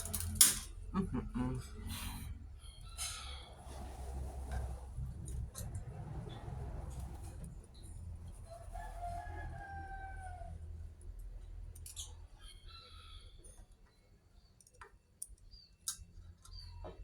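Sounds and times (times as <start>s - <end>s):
steady low hum: 0.0s - 8.4s
rooster crowing: 8.5s - 10.8s, 12.4s - 13.4s.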